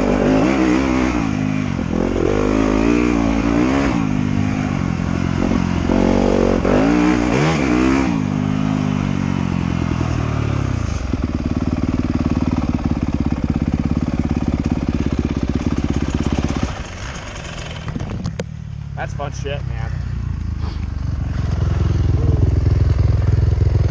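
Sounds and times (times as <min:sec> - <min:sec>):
motorcycle engine revving: 0:00.0 - 0:23.9
motorcycle engine idling: 0:09.0 - 0:23.9.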